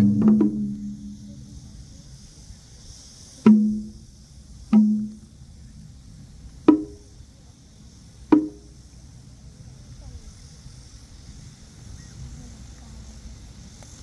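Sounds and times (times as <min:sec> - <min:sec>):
pitched percussion strikes: 0:00.0 - 0:02.2.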